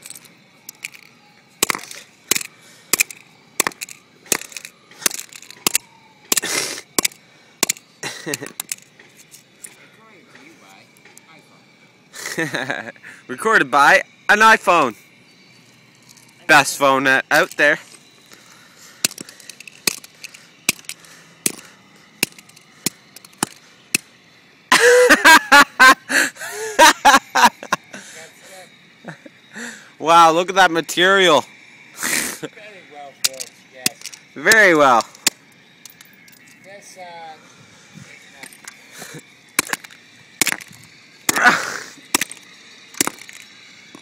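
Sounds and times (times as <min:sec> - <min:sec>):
hammer smashing phone on rock: 0:01.6 - 0:07.8, 0:39.6 - 0:42.4.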